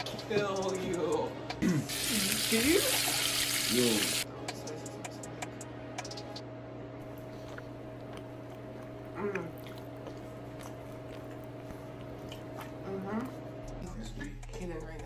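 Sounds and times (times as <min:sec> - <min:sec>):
steady low hum: 0:04.3 - 0:15.0
person chewing food: 0:07.0 - 0:12.9
person humming: 0:09.1 - 0:09.6.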